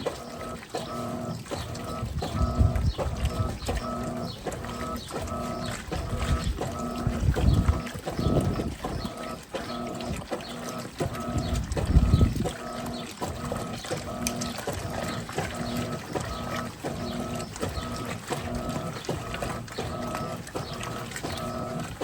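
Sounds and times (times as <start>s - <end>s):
washing machine motor humming: 0.0s - 22.0s
water sloshing in tub: 0.0s - 22.0s.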